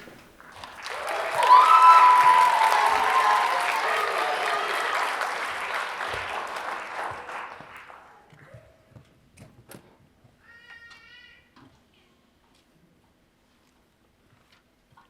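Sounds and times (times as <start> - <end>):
audience applause: 0.4 - 8.3.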